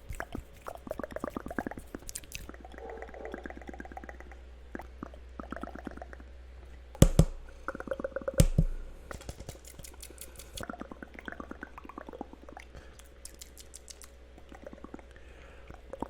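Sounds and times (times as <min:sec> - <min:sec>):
wet mouth clicks and pops: 0:00.0 - 0:02.8, 0:07.0 - 0:15.0
quick tapping: 0:08.4 - 0:10.6.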